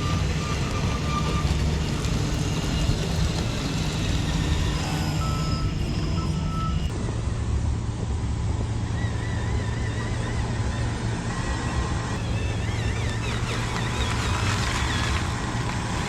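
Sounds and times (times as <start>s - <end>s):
toy motors and gearboxes running: 0.0s - 7.0s, 8.9s - 16.0s
reversing alarm beeps: 4.3s - 6.9s.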